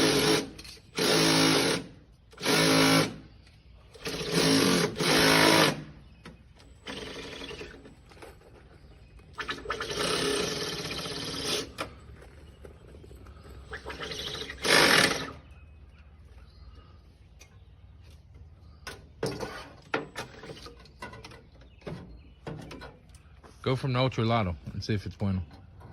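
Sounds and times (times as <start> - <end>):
power shears cutting roofing: 0.0 - 3.2, 4.0 - 6.0, 9.4 - 11.9, 13.8 - 15.4.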